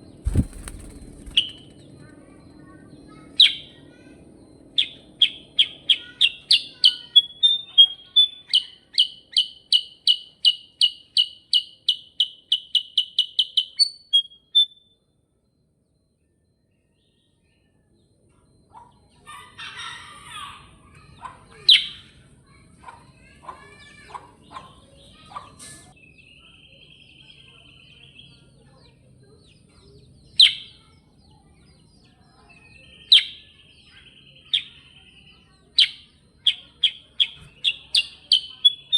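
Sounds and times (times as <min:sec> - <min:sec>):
bird chirps and trills: 0:00.0 - 0:03.9, 0:16.8 - 0:38.9
bird whistling song: 0:04.8 - 0:14.9, 0:32.5 - 0:38.9.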